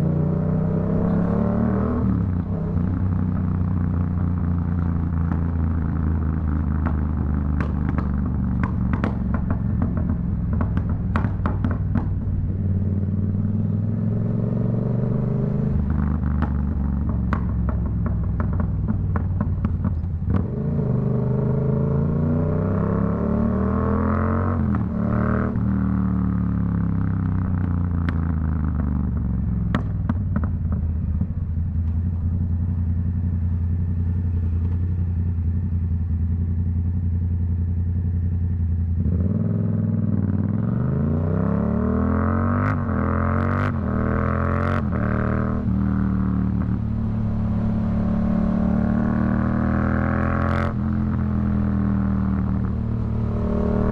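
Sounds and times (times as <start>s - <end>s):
motorcycle engine revving: 0.0s - 37.2s, 38.0s - 53.9s
exhaust pops and bangs: 6.6s - 12.6s, 16.2s - 20.5s, 28.8s - 32.4s.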